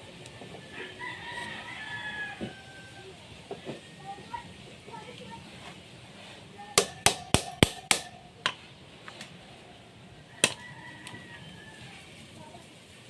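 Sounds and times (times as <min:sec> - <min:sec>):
sharp knocks on metal: 0:06.8 - 0:08.6.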